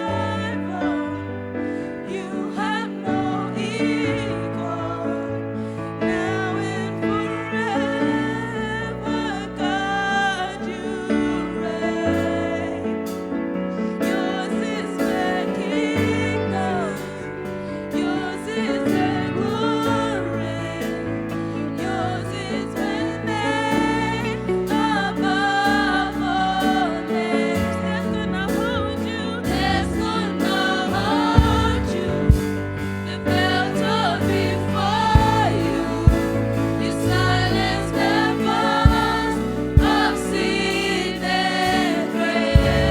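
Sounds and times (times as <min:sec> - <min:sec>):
worship band playing gospel: 0:00.0 - 0:42.9
voices singing: 0:14.0 - 0:42.9
drum hits: 0:31.4 - 0:32.8, 0:35.2 - 0:38.2, 0:42.6 - 0:42.9.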